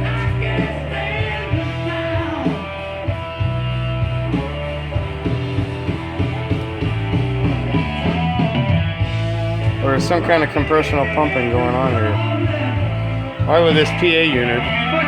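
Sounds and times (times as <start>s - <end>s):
rock music through speakers: 0.0s - 15.0s.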